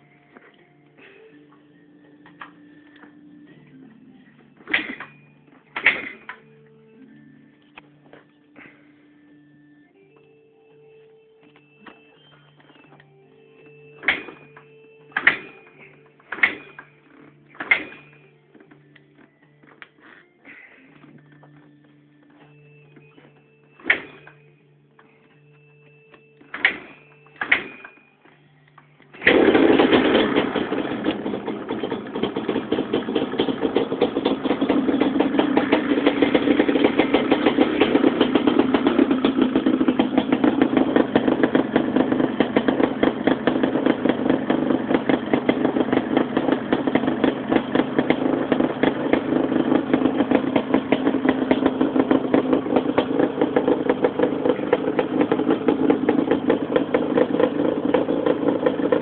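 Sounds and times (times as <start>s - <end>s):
two-stroke engine starting and running: 4.6s - 6.4s, 14.0s - 18.7s, 23.8s - 24.4s, 26.4s - 28.0s, 29.1s - 59.0s.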